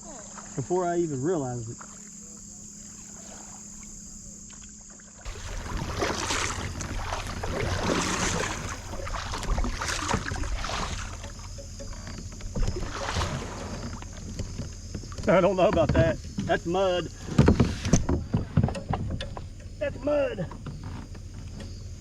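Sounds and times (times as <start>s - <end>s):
high insect trill: 0.0s - 22.0s
water sloshing around a kayak: 0.0s - 22.0s
rustling and knocking: 13.6s - 19.8s.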